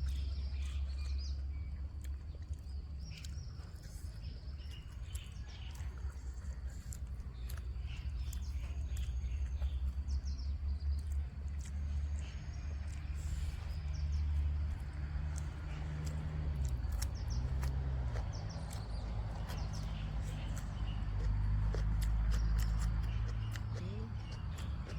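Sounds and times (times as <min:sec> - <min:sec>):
small birds chirping: 0:00.0 - 0:24.9
steady low rumble: 0:00.0 - 0:24.9.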